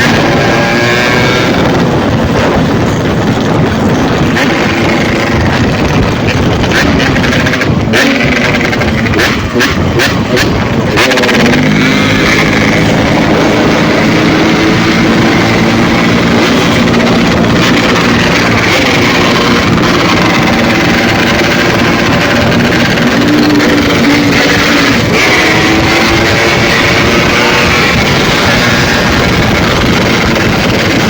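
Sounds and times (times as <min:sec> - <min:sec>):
two-stroke motorcycles buzzing: 0:00.0 - 0:31.0.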